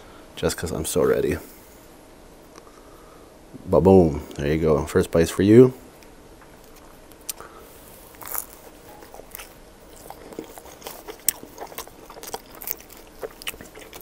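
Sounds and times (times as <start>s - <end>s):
crunchy chewing: 6.6s - 14.0s
biting into crisp food: 8.1s - 14.0s.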